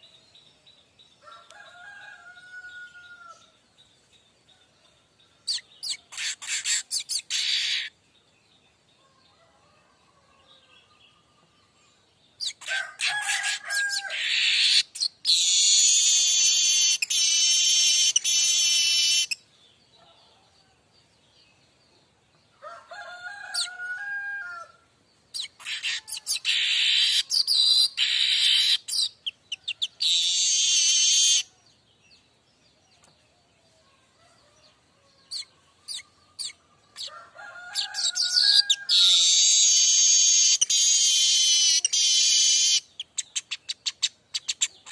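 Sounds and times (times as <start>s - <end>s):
weaver bird chattering and trilling: 5.4s - 7.9s, 12.4s - 19.4s, 25.3s - 31.5s, 35.2s - 37.1s, 37.8s - 44.9s.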